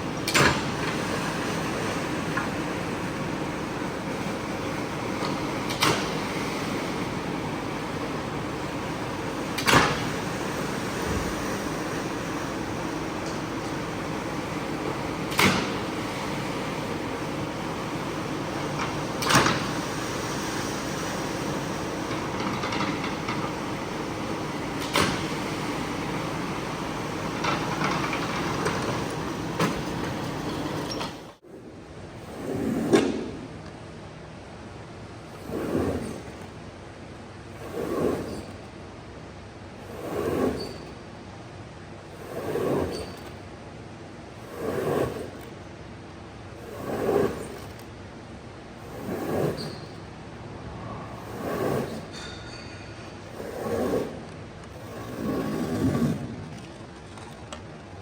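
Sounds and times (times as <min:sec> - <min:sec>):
swishing stroke over carpet: 0:35.3 - 0:36.6, 0:37.5 - 0:38.7, 0:39.8 - 0:40.9, 0:42.1 - 0:43.3, 0:44.3 - 0:45.6, 0:46.5 - 0:47.9, 0:48.7 - 0:52.2, 0:53.2 - 0:56.8.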